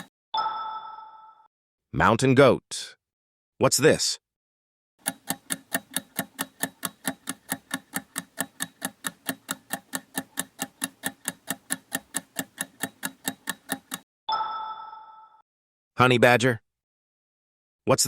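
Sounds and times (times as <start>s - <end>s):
clock-like ticking: 5.0s - 14.0s.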